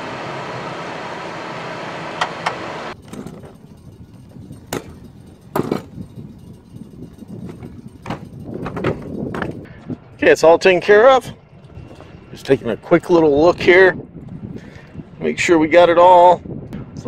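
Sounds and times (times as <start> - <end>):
aircraft cockpit rushing noise: 0.0 - 10.0
scattered clicks and knocks: 2.2 - 9.7.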